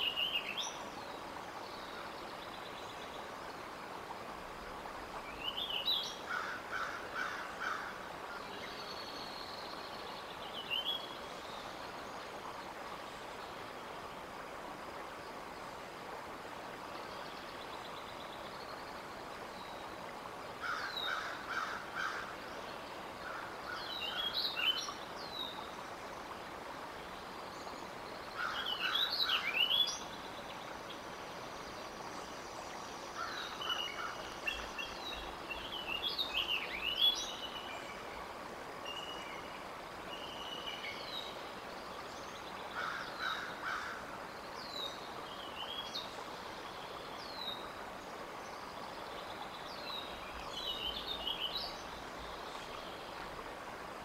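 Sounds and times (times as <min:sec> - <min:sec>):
outdoor background hiss: 0:00.0 - 0:54.0
wild birds chirping and whistling: 0:28.4 - 0:30.1.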